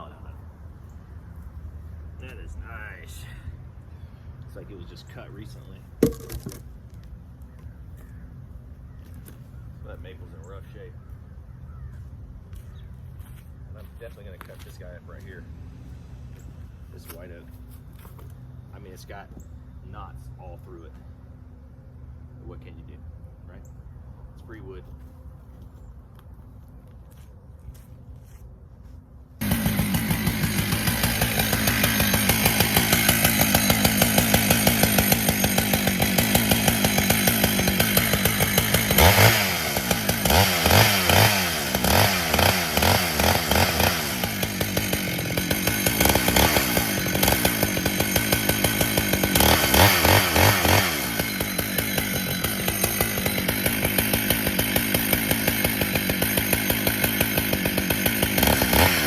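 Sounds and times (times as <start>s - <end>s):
chainsaw cutting log: 6.0s - 6.7s, 29.4s - 59.0s.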